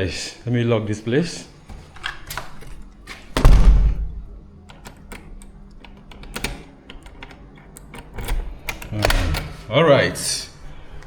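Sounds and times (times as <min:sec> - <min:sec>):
door lock clicks and knocks: 0:02.1 - 0:09.6
door shutting with thud: 0:03.2 - 0:04.4.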